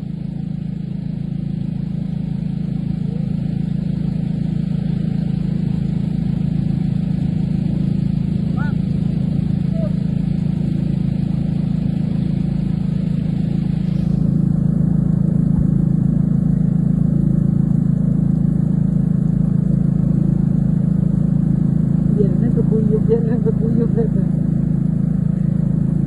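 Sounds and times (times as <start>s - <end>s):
engine droning: 0.0s - 26.0s.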